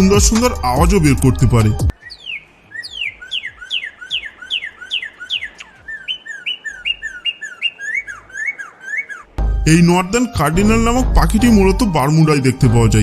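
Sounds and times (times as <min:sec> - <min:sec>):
cardinal singing whistles: 0:01.9 - 0:09.3.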